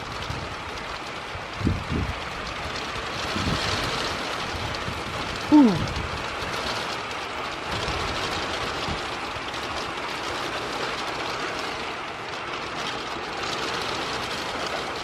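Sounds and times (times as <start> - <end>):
strong wind on microphone: 1.6 - 2.2, 3.2 - 6.2.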